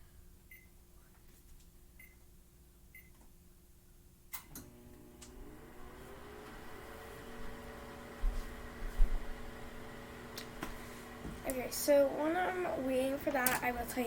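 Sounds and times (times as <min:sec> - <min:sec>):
microwave running hum: 0:04.2 - 0:14.0.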